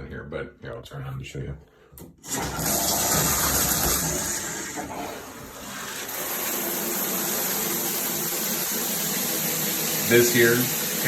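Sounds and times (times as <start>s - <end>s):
shower spraying water: 2.2s - 11.0s.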